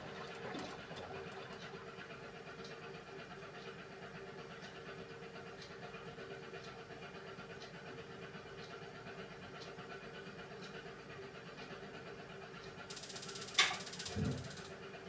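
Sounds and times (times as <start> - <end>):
washing machine motor hum: 13.0 - 14.7.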